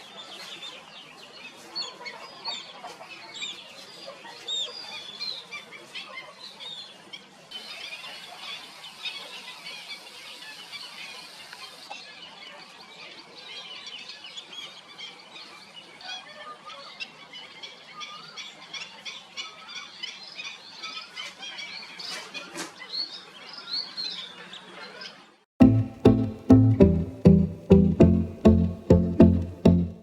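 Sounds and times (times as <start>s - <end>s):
plucked-string music: 25.6s - 30.0s.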